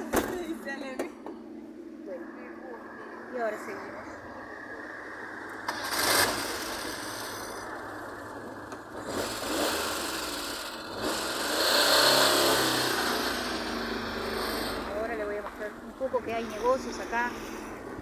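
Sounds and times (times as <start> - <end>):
car engine accelerating: 5.4 - 18.0.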